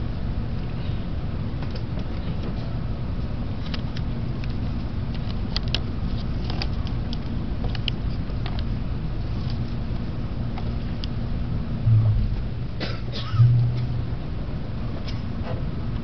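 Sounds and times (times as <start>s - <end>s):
train cabin rumble: 11.1s - 15.8s.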